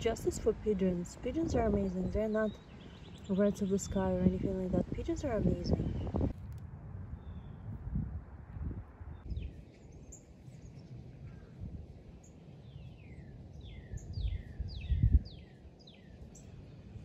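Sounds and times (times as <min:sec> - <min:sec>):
low rumble: 0:04.1 - 0:09.6.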